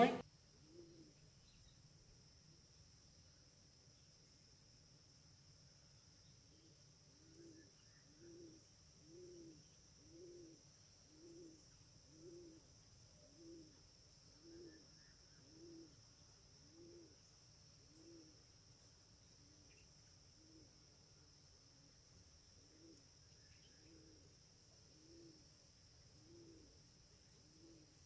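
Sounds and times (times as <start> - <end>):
steady high hiss: 0.0 - 28.0
low bird hooting: 14.4 - 16.0.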